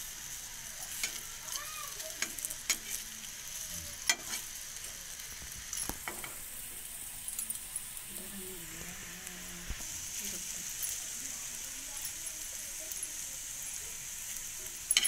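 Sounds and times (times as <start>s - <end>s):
banana slices sizzling in oil: 0.0s - 15.0s
spatula clicking on griddle: 0.8s - 3.0s, 4.0s - 5.0s, 5.7s - 7.8s, 14.3s - 15.0s.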